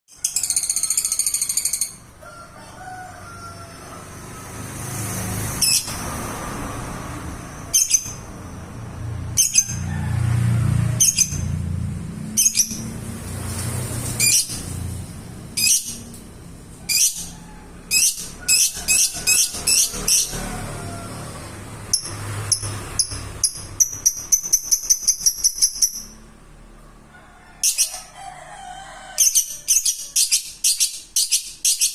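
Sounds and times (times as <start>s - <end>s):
lovebird shrill chirps: 15.6s - 16.0s, 16.9s - 17.3s, 21.9s - 26.2s, 29.2s - 31.9s.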